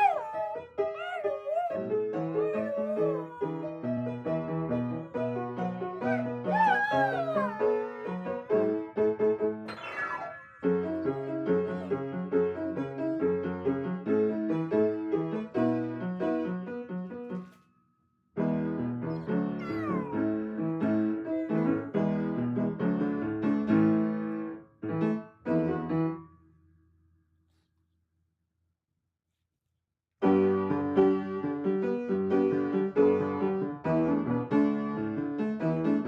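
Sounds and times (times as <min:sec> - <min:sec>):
dog howling: 0:00.0 - 0:04.1, 0:06.0 - 0:08.8, 0:19.1 - 0:20.4.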